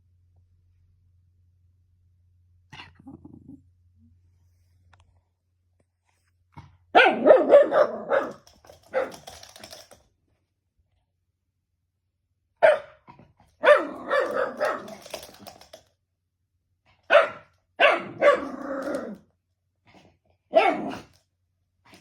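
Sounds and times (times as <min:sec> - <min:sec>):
dog barking: 0:06.9 - 0:09.2, 0:12.6 - 0:13.0, 0:13.6 - 0:15.0, 0:17.1 - 0:19.2, 0:20.5 - 0:21.1.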